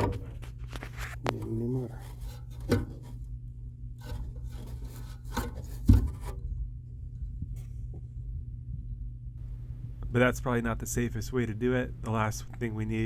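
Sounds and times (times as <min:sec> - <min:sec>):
rusty blower wheel scraping: 0:00.0 - 0:03.3, 0:04.0 - 0:06.5
low hum: 0:00.0 - 0:13.0.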